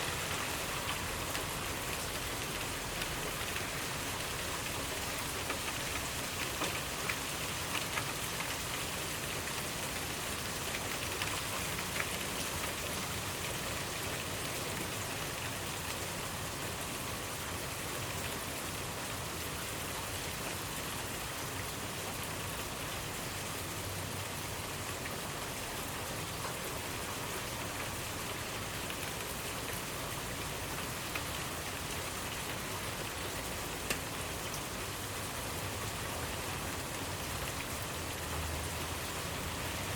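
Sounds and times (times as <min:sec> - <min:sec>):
steady rain hiss: 0:00.0 - 0:39.9
raindrop ticks: 0:00.7 - 0:08.8, 0:30.7 - 0:34.6.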